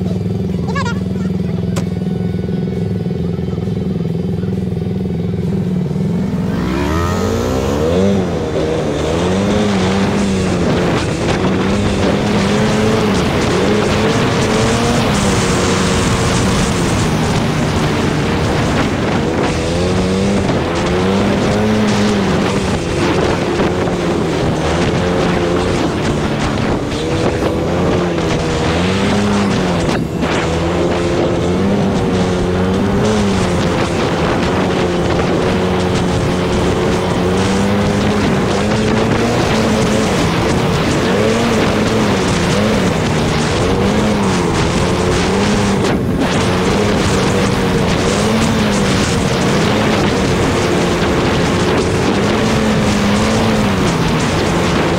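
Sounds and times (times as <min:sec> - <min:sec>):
atv engine revving: 0:00.0 - 0:54.9
steady rushing noise: 0:01.9 - 0:54.9.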